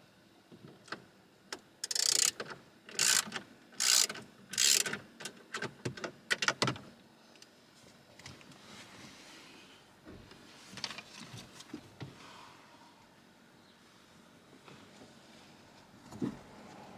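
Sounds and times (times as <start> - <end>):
ratcheting hand tool: 1.8 - 5.0.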